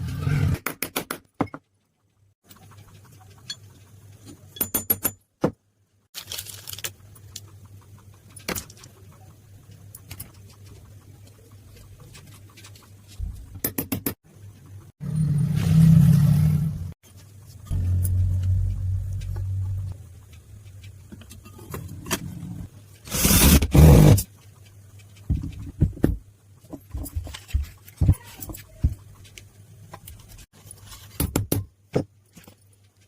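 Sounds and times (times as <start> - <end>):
low hum: 14.7 - 22.7.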